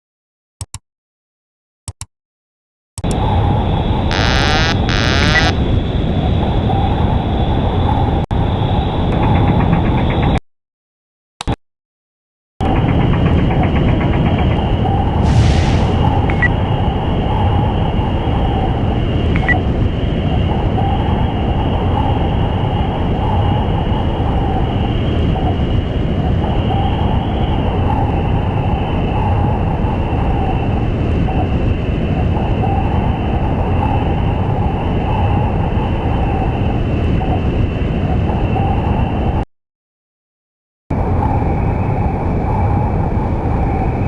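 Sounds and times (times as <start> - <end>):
machine rumble with high whine: 3.0 - 10.4, 12.6 - 39.4.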